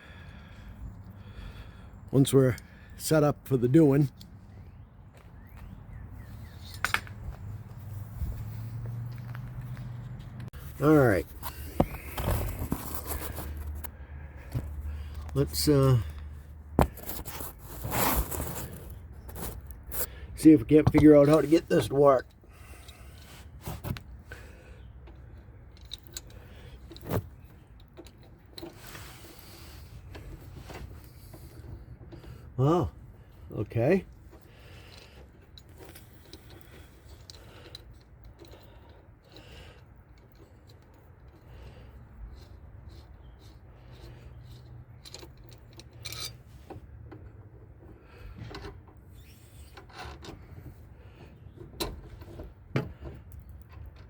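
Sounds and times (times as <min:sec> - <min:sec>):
small metal parts clicking: 0:25.0 - 0:28.8, 0:34.2 - 0:46.5
hand tool scraping metal: 0:42.2 - 0:46.6.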